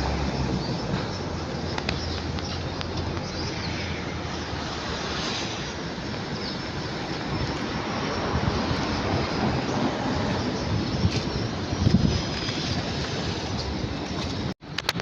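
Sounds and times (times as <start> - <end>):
jet engine rushing: 2.9 - 14.5.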